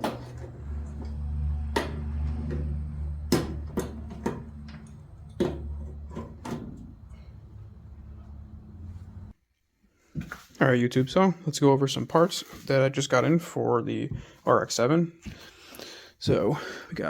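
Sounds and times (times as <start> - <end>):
steady low hum: 0.0 - 9.3.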